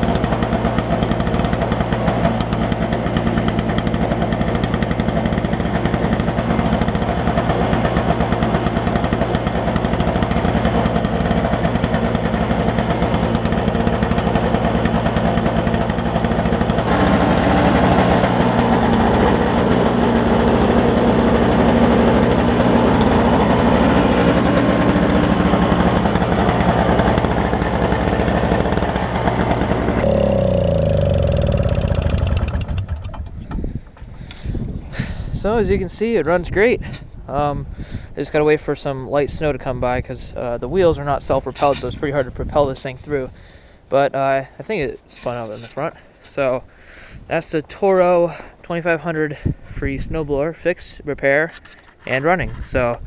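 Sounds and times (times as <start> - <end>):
snowblower two-stroke engine running: 0.0 - 34.0.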